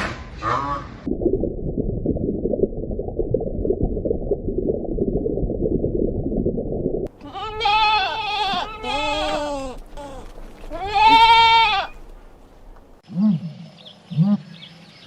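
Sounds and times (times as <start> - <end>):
low rumbling noise: 1.0 - 7.2
goat or sheep bleating: 7.2 - 12.2.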